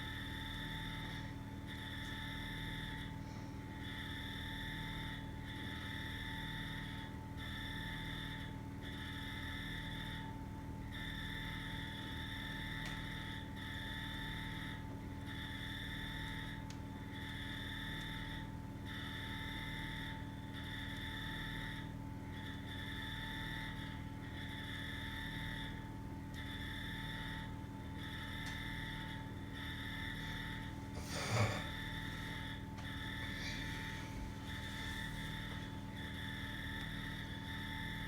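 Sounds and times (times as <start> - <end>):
low rumble and hum: 27.7 - 38.0.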